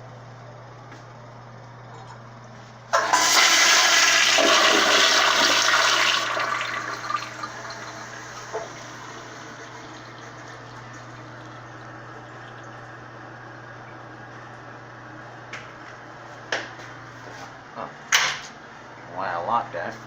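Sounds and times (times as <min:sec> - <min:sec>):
toilet flushing whoosh: 0:02.9 - 0:12.8.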